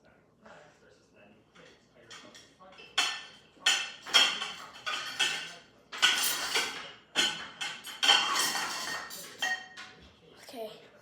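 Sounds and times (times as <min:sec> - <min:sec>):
dinner plates clinking: 0:01.5 - 0:10.2.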